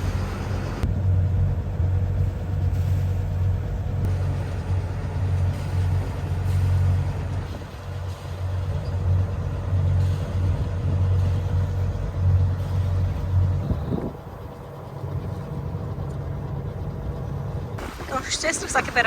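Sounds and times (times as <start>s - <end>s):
wind buffeting microphone: 10.2s - 19.0s.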